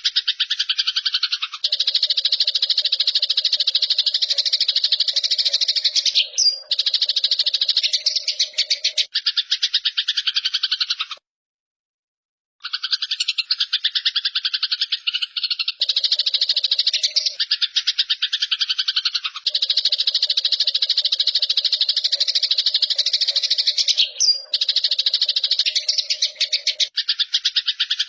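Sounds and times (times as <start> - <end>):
sparrow chattering trill: 0.0 - 11.2, 12.6 - 28.0.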